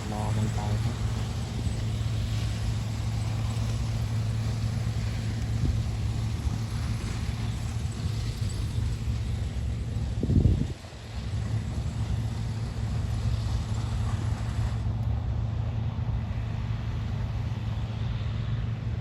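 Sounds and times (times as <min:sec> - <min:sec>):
diesel machinery running: 0:00.0 - 0:19.0.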